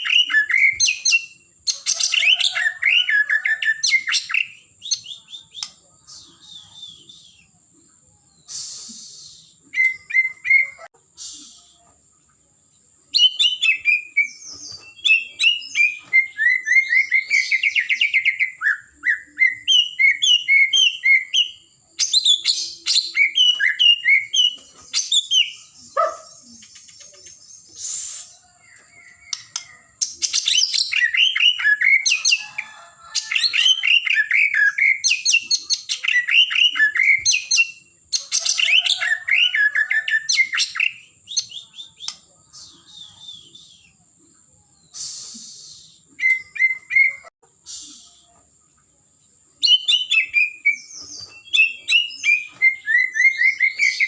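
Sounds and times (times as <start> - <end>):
bird singing whistled phrases: 2.3 - 7.6, 8.4 - 11.8, 13.2 - 28.3, 33.5 - 37.9, 38.5 - 44.0, 44.8 - 48.4, 49.6 - 54.0.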